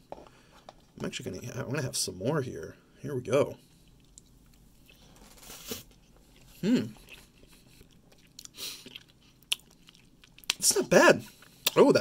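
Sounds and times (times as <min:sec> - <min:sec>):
quiet chewing: 0:03.6 - 0:10.6
person humming: 0:06.6 - 0:07.1.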